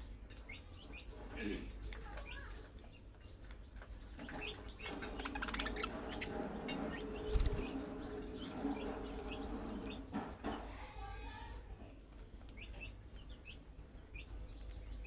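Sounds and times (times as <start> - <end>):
budgerigars chattering: 4.2 - 9.5.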